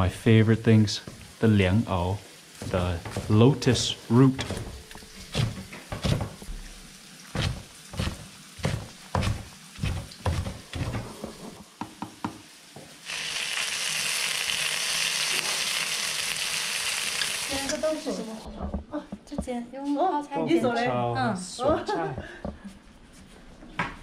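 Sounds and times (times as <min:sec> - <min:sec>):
food sizzling in hot oil: 0:00.8 - 0:18.5
kitchen knocks and clatters: 0:02.6 - 0:06.7, 0:07.4 - 0:12.9, 0:18.4 - 0:19.6.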